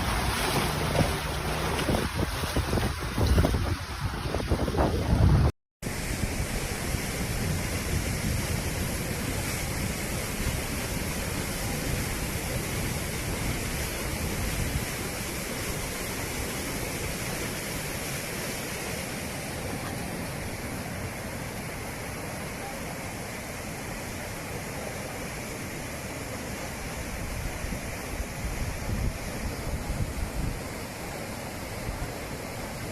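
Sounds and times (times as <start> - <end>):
rainwater rushing into sinkhole: 0.0 - 4.9.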